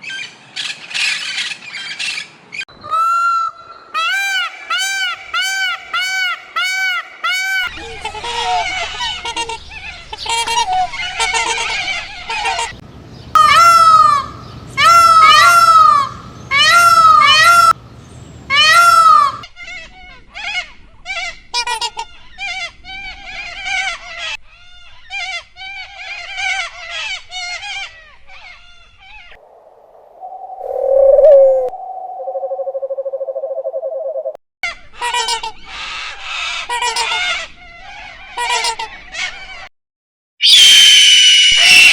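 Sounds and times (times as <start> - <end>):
geese honking: 2.9 - 12.8, 13.4 - 17.8, 18.5 - 28.9.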